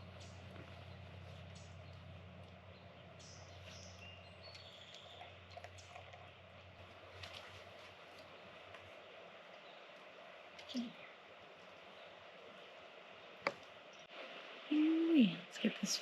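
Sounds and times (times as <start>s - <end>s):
low hum: 0.0s - 14.7s
faint bird chirps: 2.7s - 6.3s.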